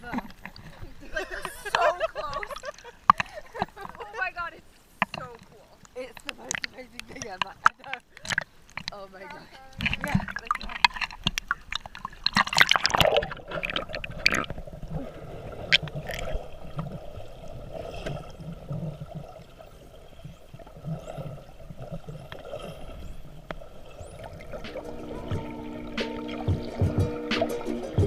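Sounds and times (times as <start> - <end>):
water sloshing and gurgling: 0.0 - 28.0
music: 24.6 - 28.0.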